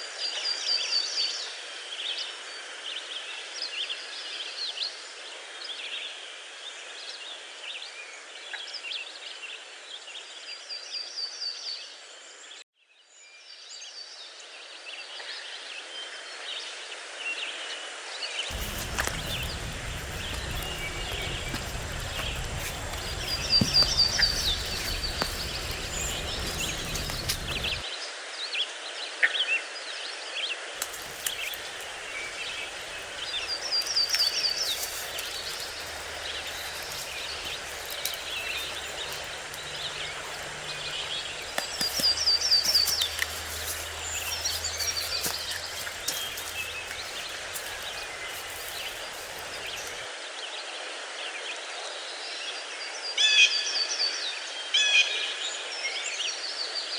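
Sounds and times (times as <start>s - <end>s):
small birds singing: 18.5s - 27.8s, 30.8s - 50.1s
steady background hiss: 18.5s - 27.8s, 30.8s - 50.0s.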